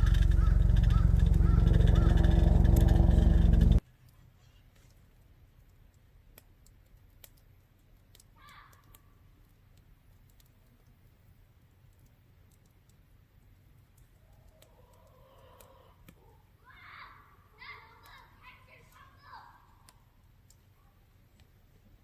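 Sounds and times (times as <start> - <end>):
campfire crackling clicks: 0.0 - 3.8, 5.6 - 11.2, 11.8 - 15.0, 19.8 - 20.7.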